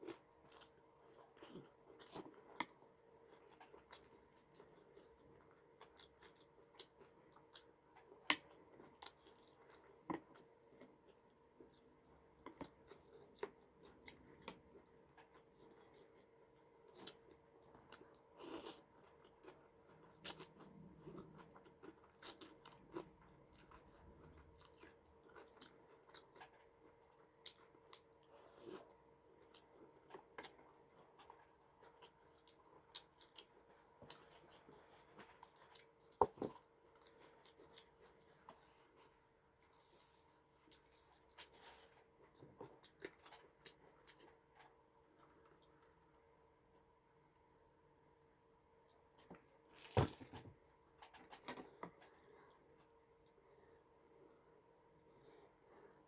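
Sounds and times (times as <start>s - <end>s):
person chewing crunchy food: 0.0s - 38.8s, 39.9s - 45.9s
faint steady hum: 0.0s - 56.0s.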